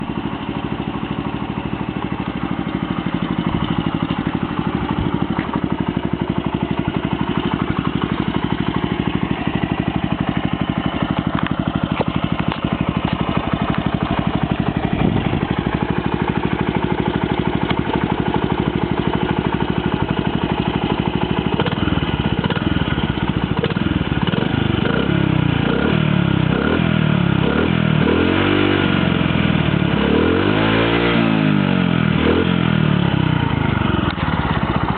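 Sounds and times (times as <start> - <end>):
small motorcycle engine idling: 0.0 - 34.9
engine revving: 21.5 - 23.0, 23.6 - 34.2.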